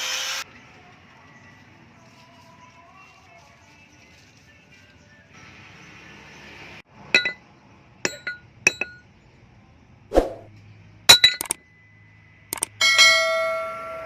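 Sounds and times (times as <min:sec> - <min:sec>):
small hard objects clinking: 0:11.1 - 0:11.6.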